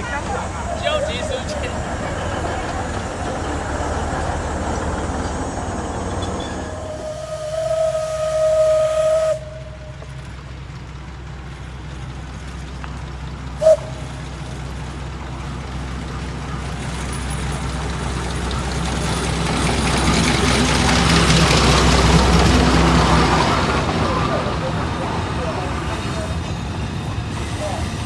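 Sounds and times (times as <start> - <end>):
locomotive rumble and hiss: 0.0 - 28.0
steam whistle: 5.2 - 10.2, 13.6 - 14.4.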